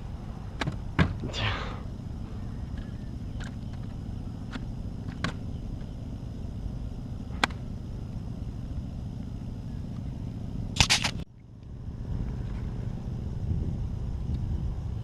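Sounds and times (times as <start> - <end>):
wind rumbling on microphone: 11.7 - 15.0.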